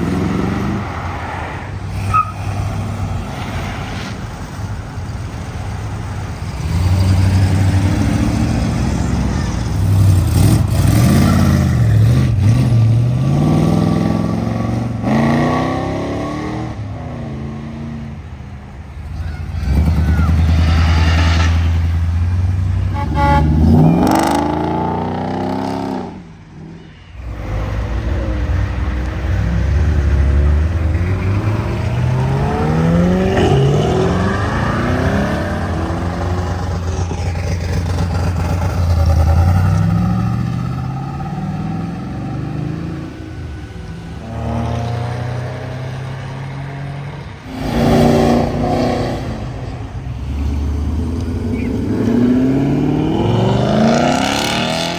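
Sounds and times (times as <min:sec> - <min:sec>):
car engines revving accelerating: 0:00.0 - 0:26.3, 0:27.2 - 0:54.9.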